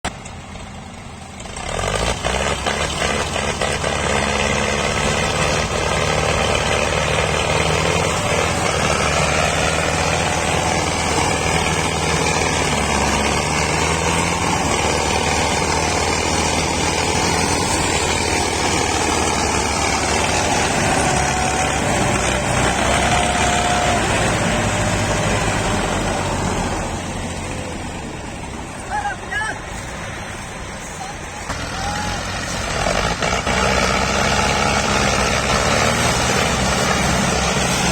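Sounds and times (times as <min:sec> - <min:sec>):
tractor diesel engines under load: 0:00.0 - 0:37.9.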